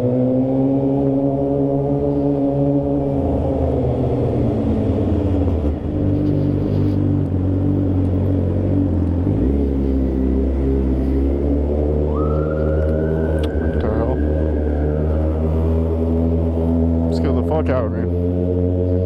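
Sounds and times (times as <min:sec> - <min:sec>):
high rising tone: 0:09.6 - 0:17.5.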